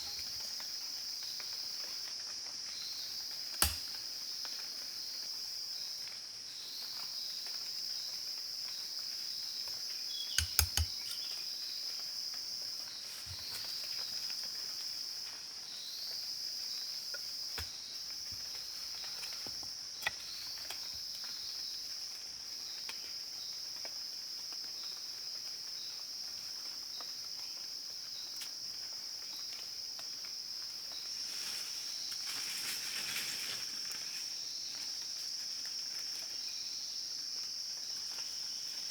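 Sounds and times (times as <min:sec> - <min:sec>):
high-pitched insect chorus: 0:00.0 - 0:38.9
sharp clicks or knocks: 0:03.6 - 0:03.9, 0:10.4 - 0:11.2.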